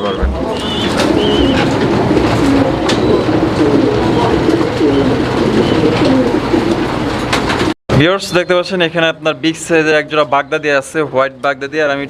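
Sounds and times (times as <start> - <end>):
pigeons cooing: 0.0 - 7.7.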